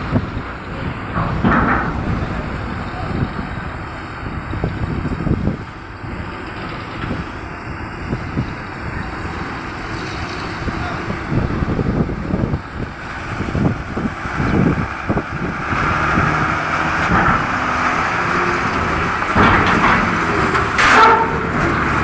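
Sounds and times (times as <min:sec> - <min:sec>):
vehicle engine rumble: 0:00.0 - 0:22.0
wind buffeting microphone: 0:00.0 - 0:22.0
voices in background: 0:10.2 - 0:12.0.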